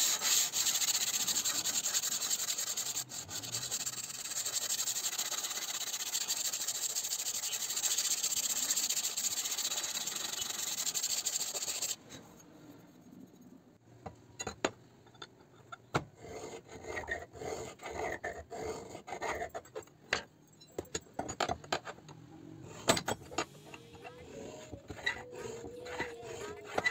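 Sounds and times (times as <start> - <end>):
sharpening stone scraping knife: 0.0 - 12.0, 23.6 - 26.9
tools clicking and knocking: 19.6 - 22.2, 22.8 - 23.9.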